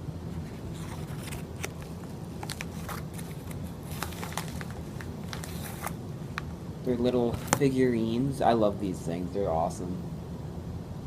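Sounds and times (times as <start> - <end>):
steady low hum: 0.0 - 11.0
crinkly rustling of packaging: 0.6 - 6.0.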